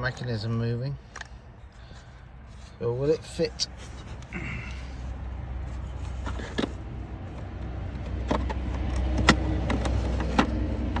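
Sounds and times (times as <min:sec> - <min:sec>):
plastic latch clicks and knocks: 0:08.0 - 0:10.6.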